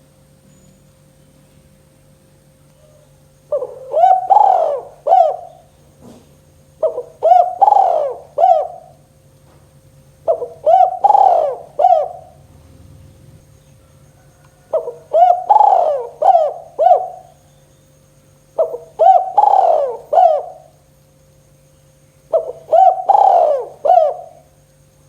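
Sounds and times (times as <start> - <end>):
dove cooing: 2.8 - 9.2, 10.1 - 17.5, 18.6 - 20.9, 22.3 - 24.6.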